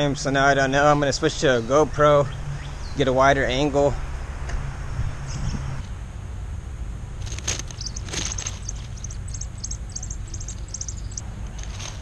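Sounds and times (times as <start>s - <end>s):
dry leaves rustling: 7.2s - 12.0s
small bird chirping: 7.3s - 11.2s.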